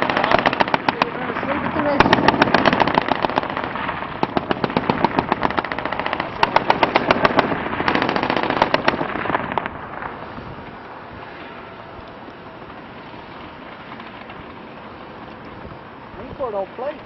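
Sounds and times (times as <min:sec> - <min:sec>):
machine-gun fire: 0:00.0 - 0:09.8.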